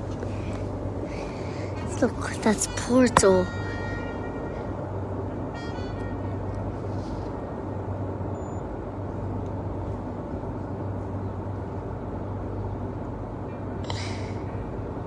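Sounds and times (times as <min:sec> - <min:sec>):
boat engine droning: 0:00.0 - 0:15.0
constant rushing noise: 0:00.0 - 0:15.0.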